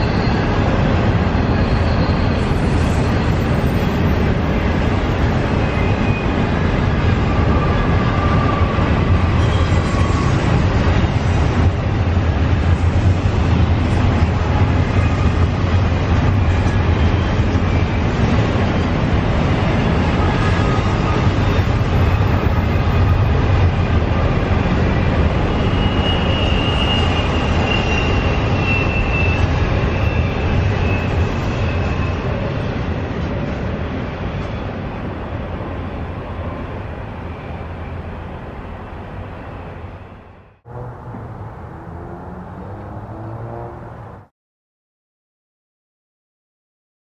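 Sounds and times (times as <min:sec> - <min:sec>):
faint high wheel squeal: 0:00.0 - 0:04.3, 0:07.1 - 0:11.1, 0:25.4 - 0:32.8
train wheels rumbling on rail: 0:00.0 - 0:44.2.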